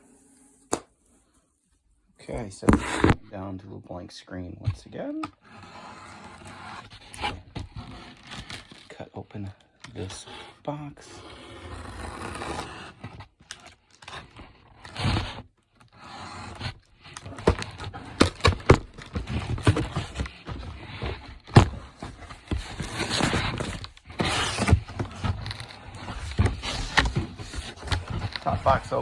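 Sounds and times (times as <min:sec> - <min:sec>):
blade slitting cardboard: 0:02.6 - 0:03.2, 0:11.5 - 0:29.0
box clicks and knocks: 0:17.2 - 0:29.0.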